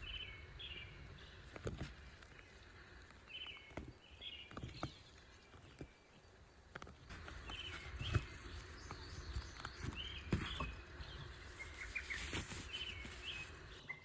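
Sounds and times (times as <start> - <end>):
songbird chirping: 0.0 - 14.0.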